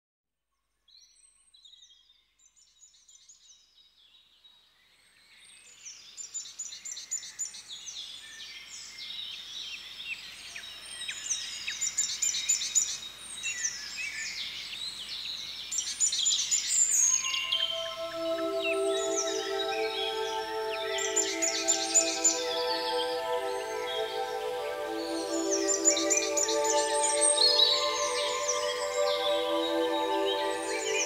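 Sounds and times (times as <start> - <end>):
birds chirping and singing: 16.8 - 31.0.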